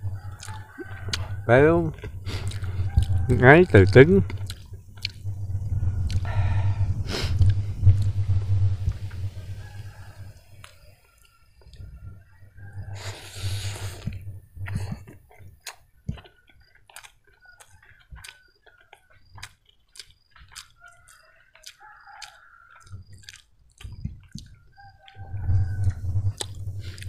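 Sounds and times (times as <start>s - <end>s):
person chewing food: 0.2s - 3.3s, 4.3s - 8.2s, 13.0s - 27.0s
wet mouth clicks: 2.0s - 3.2s, 4.3s - 5.2s, 13.4s - 25.2s, 25.8s - 27.0s
breathy hiss: 6.2s - 7.8s, 13.0s - 14.2s.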